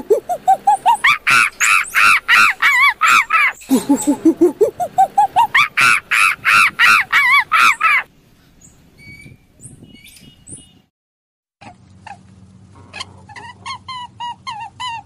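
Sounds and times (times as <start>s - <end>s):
monkey hooting and screaming: 0.0s - 8.1s, 13.0s - 15.0s.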